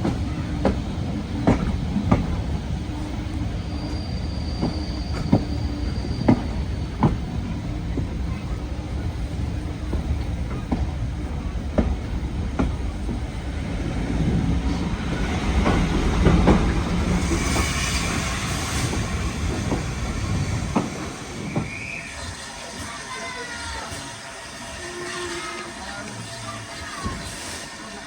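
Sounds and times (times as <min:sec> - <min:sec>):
train wheels clacking over rail joints: 0:00.0 - 0:22.0
train wheel squeal: 0:01.5 - 0:08.5, 0:14.2 - 0:28.0.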